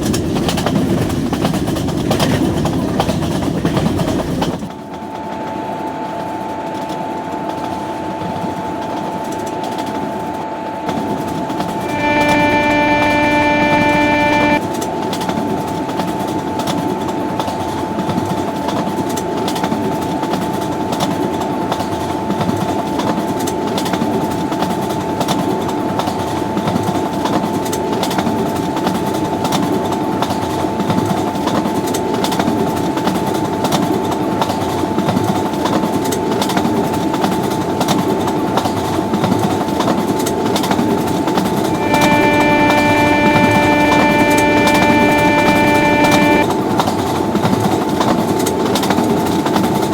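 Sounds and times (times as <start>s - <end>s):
train passing at high speed: 0.0s - 14.8s, 41.0s - 46.5s
loud multi-tone sound: 11.8s - 14.6s, 41.7s - 46.5s
steady whine: 11.8s - 14.6s, 41.6s - 46.5s.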